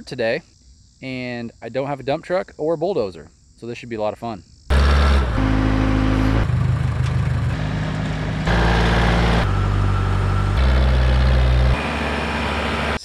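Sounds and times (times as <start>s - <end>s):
diesel engines running: 4.7s - 13.0s.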